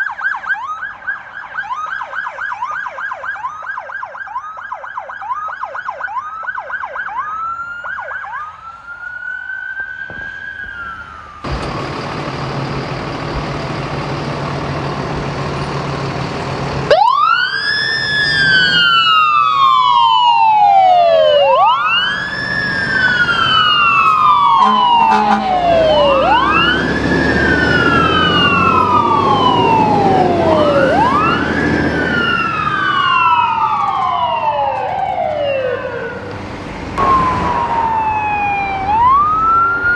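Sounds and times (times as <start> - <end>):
emergency vehicle sirens: 0.0 - 39.9
loud wail siren: 0.0 - 39.9
traffic and engine noise: 10.1 - 39.9.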